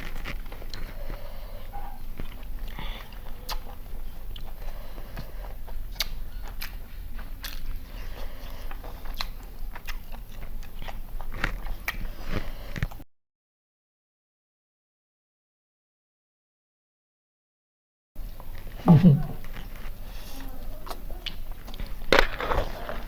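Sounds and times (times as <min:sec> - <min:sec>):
person chewing food: 0:00.0 - 0:13.0, 0:18.2 - 0:23.0.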